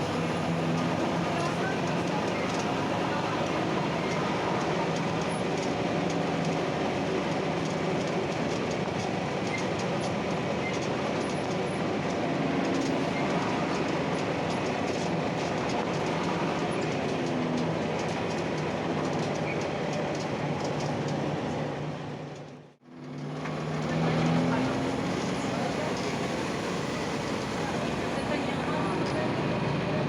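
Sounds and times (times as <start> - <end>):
bus fittings rattling and clicking: 0.0 - 21.6
bus diesel engine running: 0.0 - 30.0
road noise rumble: 0.0 - 30.0.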